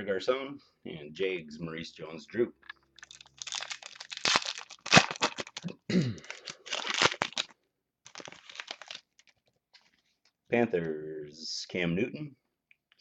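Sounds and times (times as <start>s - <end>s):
plastic crinkling: 3.0s - 9.9s.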